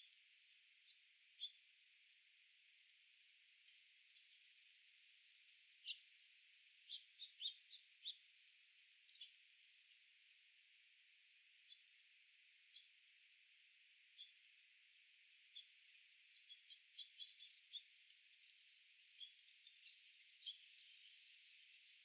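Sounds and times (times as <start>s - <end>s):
small birds chirping: 0.0s - 1.7s, 5.8s - 6.2s, 6.8s - 22.0s
faint steady hiss: 0.0s - 22.0s.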